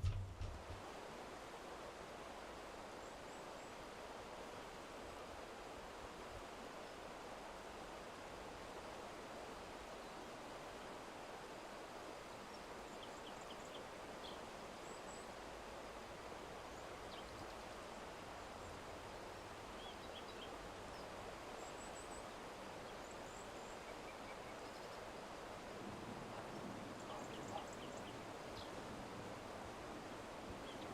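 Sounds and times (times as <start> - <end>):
faint outdoor background hiss: 0.0 - 30.9
small birds chirping: 12.3 - 16.0, 16.7 - 25.3, 26.4 - 28.9, 30.5 - 30.9.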